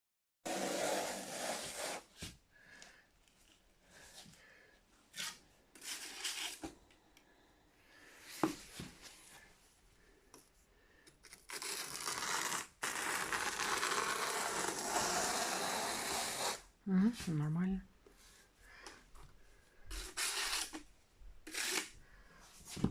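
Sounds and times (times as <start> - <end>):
scraping and rubbing: 0.5 - 2.3, 19.9 - 22.0
harsh scraping tearing: 11.4 - 16.6, 21.5 - 21.9.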